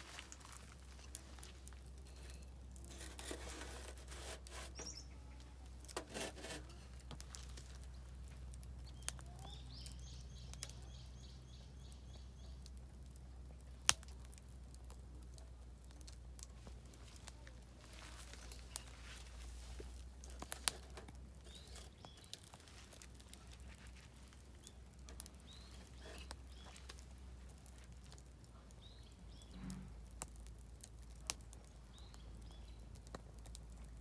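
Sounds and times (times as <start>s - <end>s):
campfire crackling and popping: 0.0s - 34.0s
bird singing a trill: 4.8s - 5.4s, 8.8s - 12.6s.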